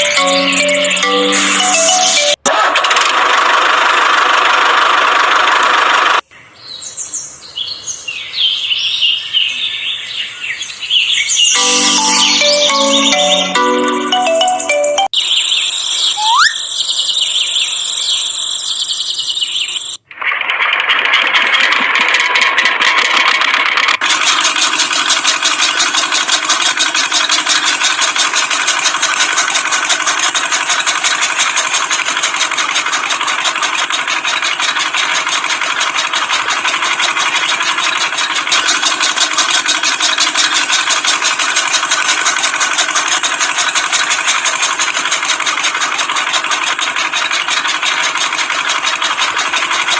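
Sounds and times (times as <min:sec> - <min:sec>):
music: 0:00.0 - 0:02.4, 0:11.6 - 0:15.1.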